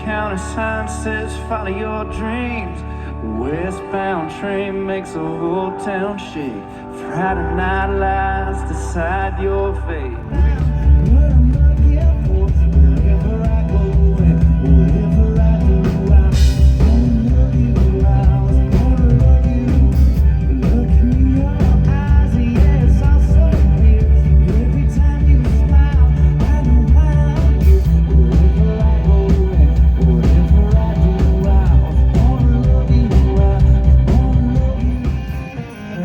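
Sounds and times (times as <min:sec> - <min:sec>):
bass: 0:00.0 - 0:36.0
electric guitar: 0:00.0 - 0:36.0
person singing: 0:00.0 - 0:36.0
steady drum beat: 0:10.4 - 0:35.5.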